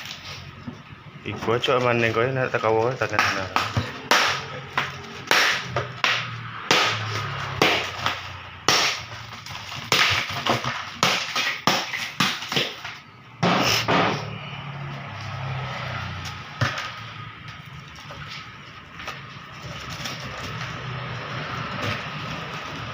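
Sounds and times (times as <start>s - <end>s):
sharp knocks and cracks: 3.0s - 14.3s, 16.2s - 22.9s.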